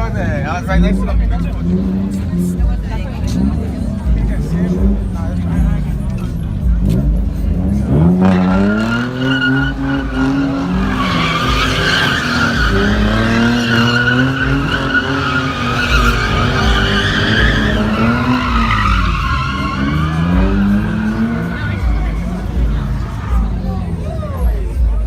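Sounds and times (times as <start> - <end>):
car engine revving hard: 0.0 - 25.0
tyres squealing: 7.9 - 24.2.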